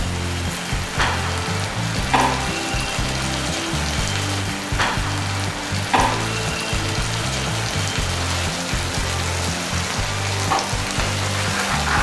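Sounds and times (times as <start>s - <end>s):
background music with bass line: 0.0s - 12.0s
vegetables sizzling in hot oil: 0.0s - 12.0s
spatula stirring in a pan: 10.6s - 12.0s.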